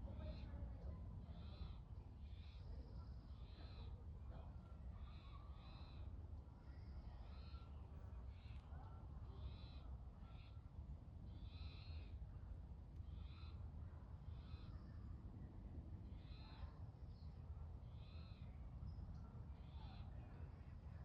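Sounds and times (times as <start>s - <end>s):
faint bird calls: 11.3s - 12.2s, 13.0s - 15.1s, 16.1s - 17.3s.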